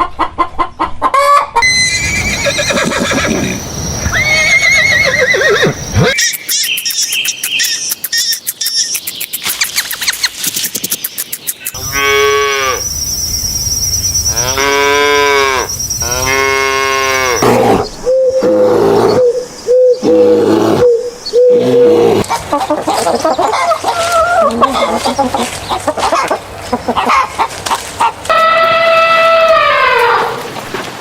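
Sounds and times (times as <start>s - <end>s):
mixed animal calls: 1.2s - 9.0s, 11.6s - 13.2s.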